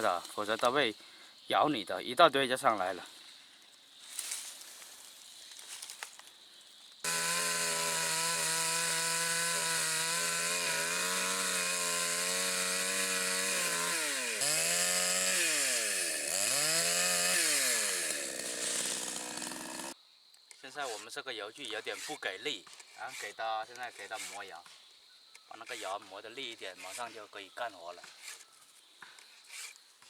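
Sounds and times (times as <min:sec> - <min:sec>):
chainsaw running at high revs: 0:07.0 - 0:20.0.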